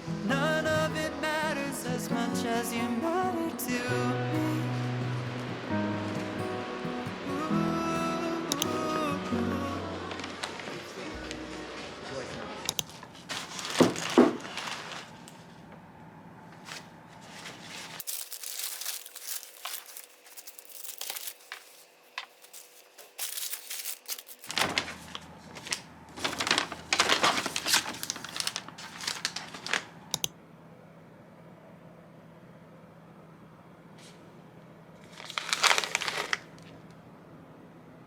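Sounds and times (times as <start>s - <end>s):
wrapping crinkling and rustling: 10.1s - 15.7s, 16.5s - 30.1s, 35.0s - 36.8s.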